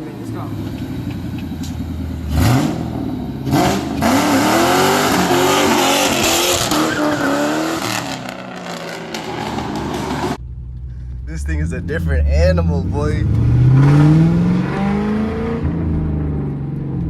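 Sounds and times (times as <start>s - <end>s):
car engine revving hard: 2.2s - 10.4s, 11.4s - 16.5s.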